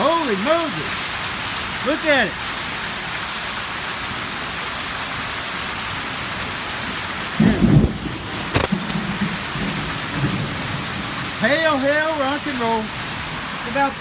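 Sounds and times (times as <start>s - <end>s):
heavy rain and hail: 0.0s - 14.0s
sharp knocks: 8.5s - 9.0s.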